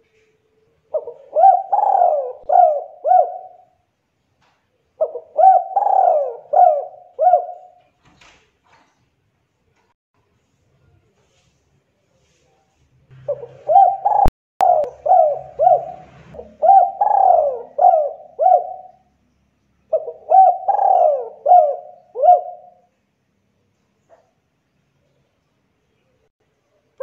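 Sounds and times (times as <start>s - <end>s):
dove cooing: 0.9s - 3.8s, 5.0s - 7.8s, 13.2s - 19.1s, 19.9s - 22.8s.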